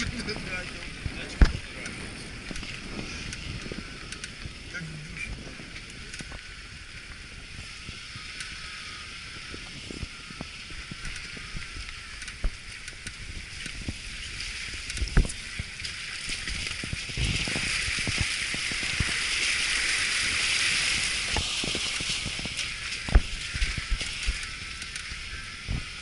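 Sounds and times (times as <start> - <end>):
mountain stream rushing: 0.0 - 26.0
low thumps and knocks: 21.3 - 24.4.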